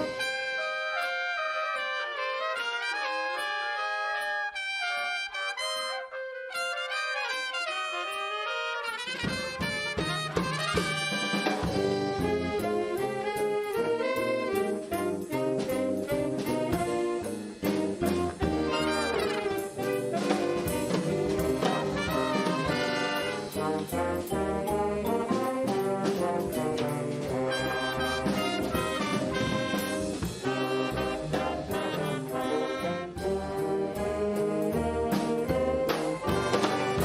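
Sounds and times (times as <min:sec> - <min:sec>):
steady drum beat: 0:00.0 - 0:00.5, 0:09.0 - 0:37.0
brass band playing: 0:00.0 - 0:37.0.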